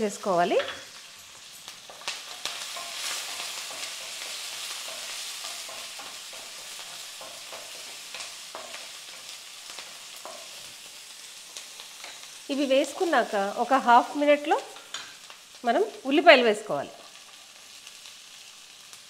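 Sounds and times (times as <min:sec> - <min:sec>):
oil sizzling in a wok: 0:00.0 - 0:19.0
wooden spatula scraping a pan: 0:00.8 - 0:12.4.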